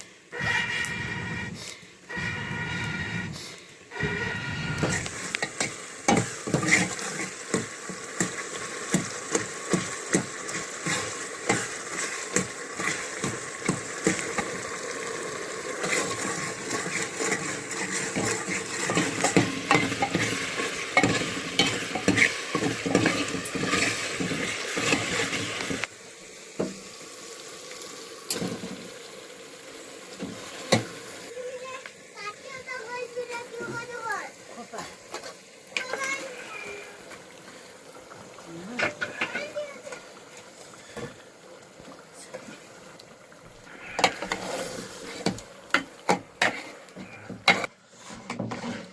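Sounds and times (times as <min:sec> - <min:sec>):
food sizzling in a pan: 0:00.0 - 0:48.9
metal ladle scraping a pan: 0:00.4 - 0:14.5, 0:15.8 - 0:25.9, 0:43.7 - 0:48.9.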